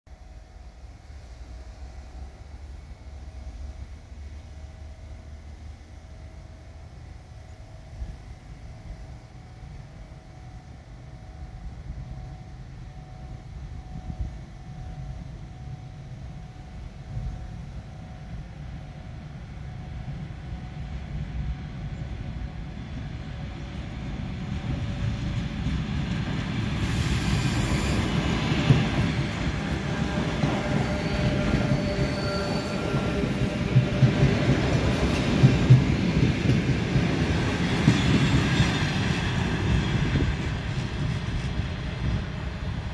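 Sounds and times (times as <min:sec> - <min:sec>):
electric train passing: 0:00.1 - 0:42.9
wheel squeal: 0:19.3 - 0:25.0, 0:26.8 - 0:33.4.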